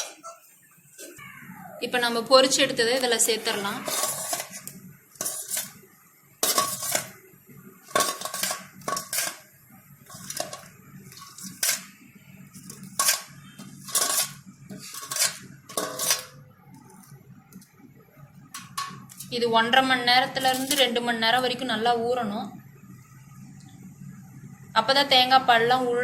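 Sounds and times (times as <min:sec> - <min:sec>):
metal spoon clinking vessels: 0:03.2 - 0:05.8, 0:06.4 - 0:07.2, 0:07.8 - 0:09.5, 0:12.6 - 0:16.4.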